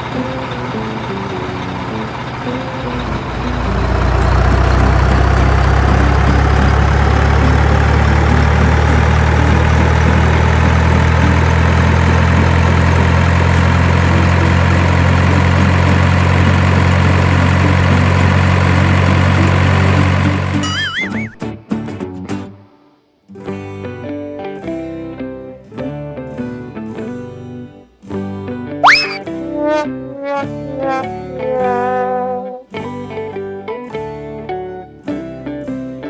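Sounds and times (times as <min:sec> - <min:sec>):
heavy truck engine running: 0:00.0 - 0:20.8
short stepped beeps: 0:28.8 - 0:29.2.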